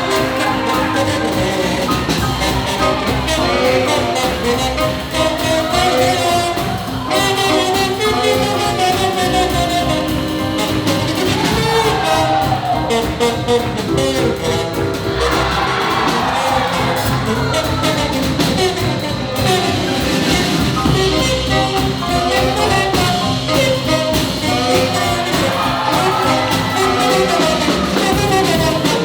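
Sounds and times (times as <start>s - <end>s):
swing jazz big band playing: 0.0s - 29.0s.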